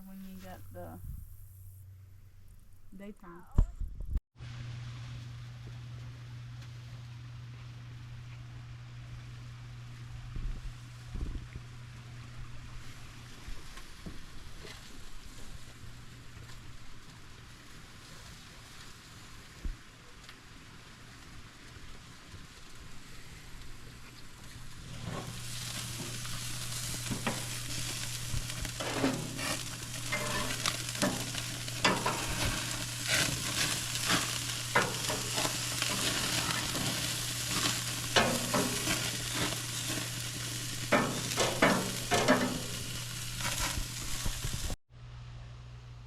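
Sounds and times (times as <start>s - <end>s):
meat sizzling: 0.0s - 3.2s, 22.5s - 44.8s
utensil clicks and scrapes: 24.8s - 44.8s.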